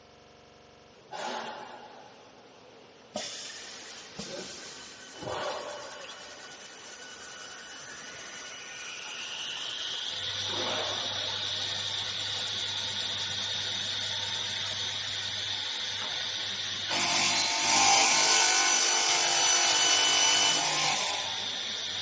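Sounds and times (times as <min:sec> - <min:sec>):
spindle motor whine: 0:03.6 - 0:22.0
saw blade cutting wood: 0:16.9 - 0:21.3.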